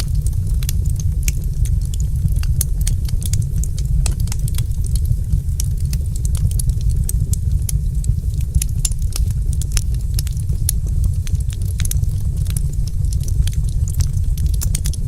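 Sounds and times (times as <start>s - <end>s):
low rumble of flames: 0.0s - 15.0s
wood fire crackling: 0.0s - 15.0s.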